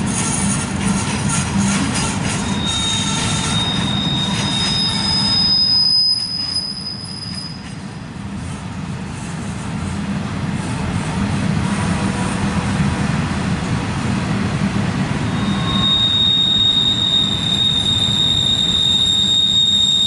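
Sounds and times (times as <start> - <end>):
wheel flange squeal: 0.0 - 7.8, 15.2 - 20.0
train wheels rumbling on rails: 0.0 - 20.0.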